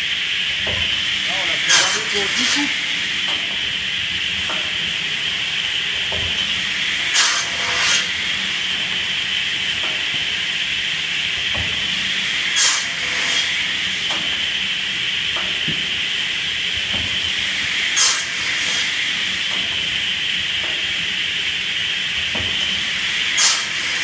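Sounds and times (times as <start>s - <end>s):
chainsaw cutting machine running: 1.2s - 3.1s.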